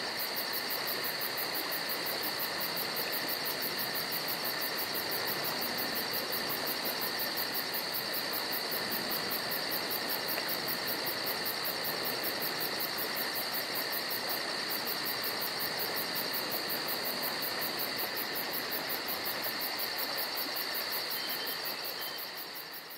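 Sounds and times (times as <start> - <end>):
insects buzzing: 0.0 - 22.9.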